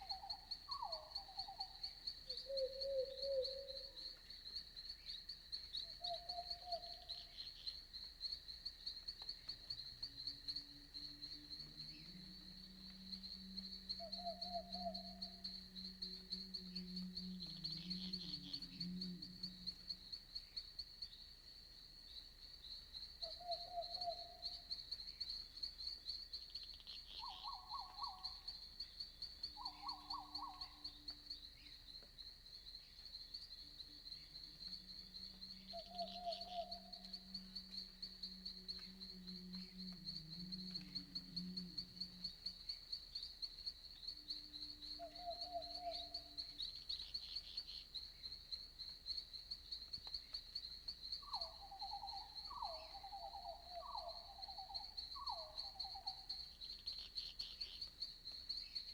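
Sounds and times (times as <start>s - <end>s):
long low hooting calls: 0.0s - 4.1s, 11.3s - 20.3s, 29.6s - 31.2s, 34.2s - 42.7s, 44.2s - 46.8s, 51.2s - 56.4s
insect chorus: 0.0s - 58.9s.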